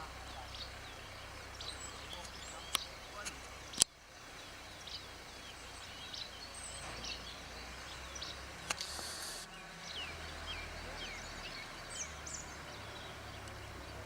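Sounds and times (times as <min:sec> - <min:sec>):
small songbirds chirping: 0:00.0 - 0:14.0
sharp click with hiss: 0:08.6 - 0:09.5.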